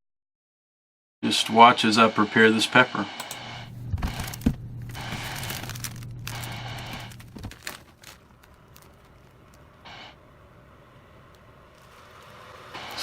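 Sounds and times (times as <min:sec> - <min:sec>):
steady low hum: 0:02.5 - 0:07.6
crinkling and rustling: 0:03.7 - 0:09.9, 0:11.3 - 0:13.0.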